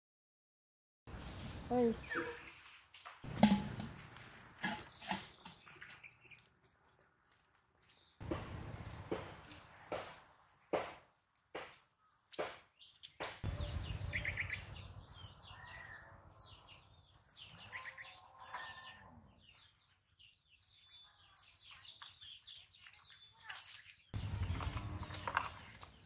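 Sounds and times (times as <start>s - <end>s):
small birds chirping: 1.1s - 3.3s, 4.6s - 10.8s, 11.5s - 26.0s
footsteps on dry leaves: 8.2s - 10.2s, 21.7s - 26.0s
low rumble: 13.4s - 16.4s.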